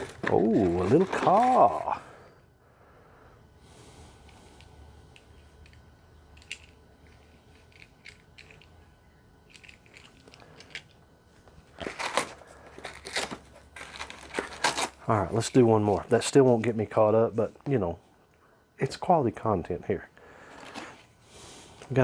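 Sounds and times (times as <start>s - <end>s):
packaging crinkling and rustling: 0.0s - 2.0s, 9.5s - 16.7s
plastic toy pieces clicking: 6.4s - 8.7s, 9.5s - 10.9s.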